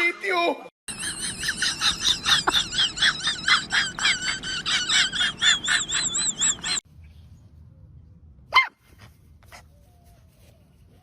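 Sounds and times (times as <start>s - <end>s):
animal chirping rapidly: 0.9s - 6.8s.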